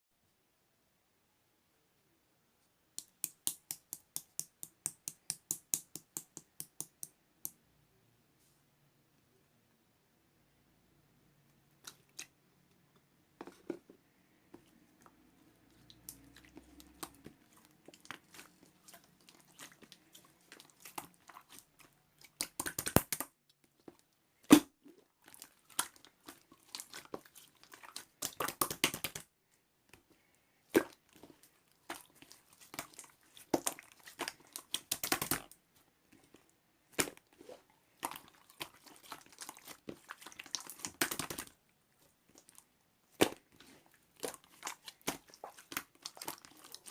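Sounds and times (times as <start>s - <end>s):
sharp loud slime pop: 24.5s - 24.7s.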